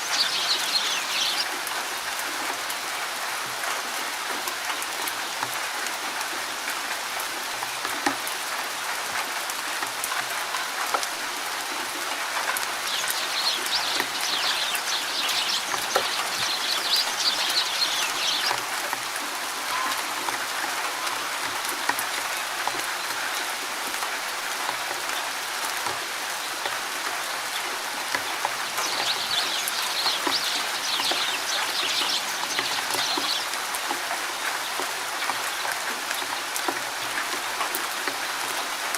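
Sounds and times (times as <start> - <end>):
bird chirping: 0.0 - 1.6, 12.8 - 18.7, 28.8 - 33.6
rain falling in forest: 0.0 - 38.9
sharp water drips: 0.0 - 38.9.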